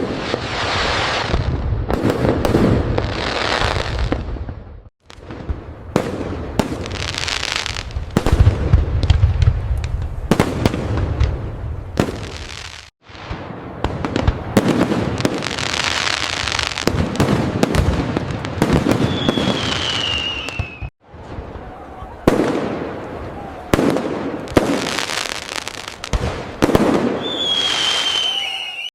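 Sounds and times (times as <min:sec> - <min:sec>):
fireworks bangs and crackling: 0:00.0 - 0:28.9
falling whistle: 0:19.0 - 0:20.9, 0:27.2 - 0:28.9.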